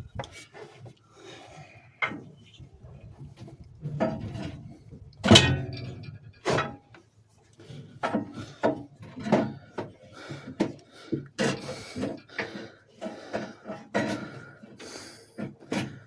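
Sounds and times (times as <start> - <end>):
metal parts and tools clunking: 5.2 - 6.9.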